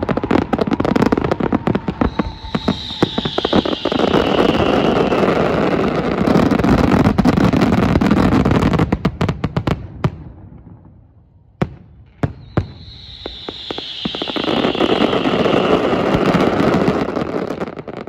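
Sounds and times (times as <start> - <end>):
fireworks bursting and crackling: 0.0 - 10.9, 11.6 - 18.0.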